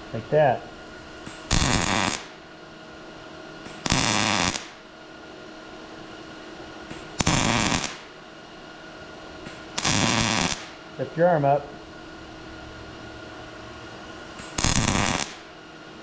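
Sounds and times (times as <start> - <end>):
faint steady hum: 0.0 - 16.0
welder arc crackling: 1.2 - 2.4, 3.6 - 4.8, 6.9 - 8.2, 9.4 - 10.8, 14.3 - 15.5.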